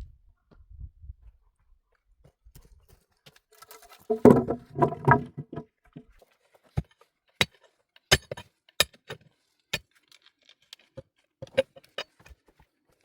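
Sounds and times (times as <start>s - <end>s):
hard objects knocking together: 4.1s - 5.6s.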